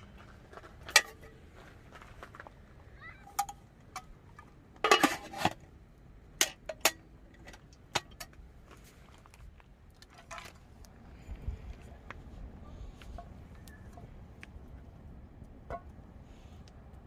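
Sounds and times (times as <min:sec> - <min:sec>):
clinks and knocks of hard objects: 0:00.5 - 0:01.4, 0:03.2 - 0:05.7, 0:06.4 - 0:08.4.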